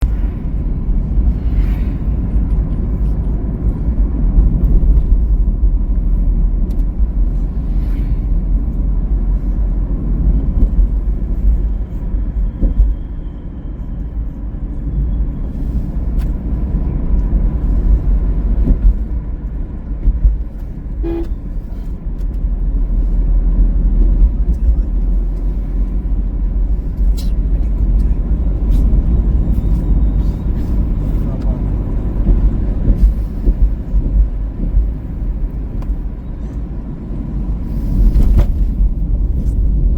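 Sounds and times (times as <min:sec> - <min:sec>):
car road and wind rumble: 0:00.0 - 0:39.9
vehicle horn toot: 0:21.0 - 0:21.5.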